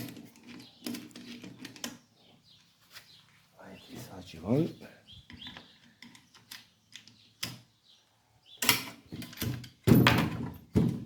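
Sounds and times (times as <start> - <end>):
knocks and rattles: 8.8 - 11.0.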